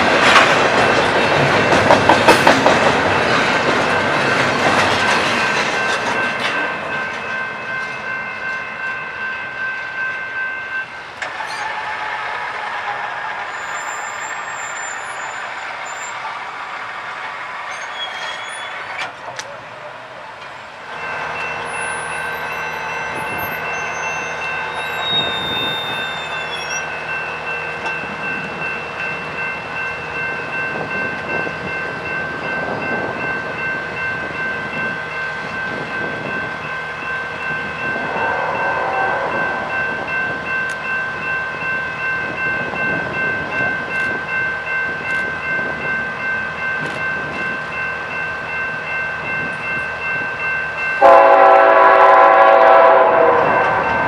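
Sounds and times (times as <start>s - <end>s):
crossing warning bell ringing: 0.0s - 16.3s, 20.4s - 54.0s
train wheels clacking on rails: 0.0s - 19.6s.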